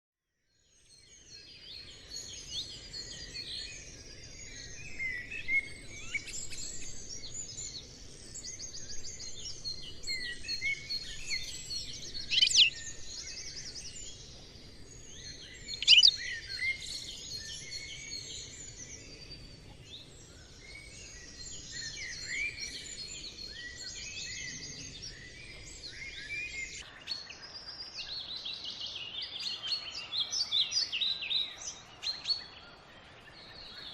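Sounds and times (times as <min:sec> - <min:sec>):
small birds chirping and twittering: 0:00.3 - 0:33.9
sharp bird calls: 0:09.5 - 0:13.8, 0:15.3 - 0:18.2.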